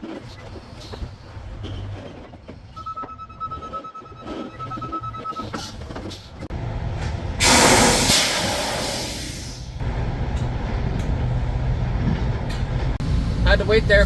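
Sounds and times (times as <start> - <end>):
truck engine idling: 5.6 - 14.0
air brakes hissing: 7.4 - 9.8.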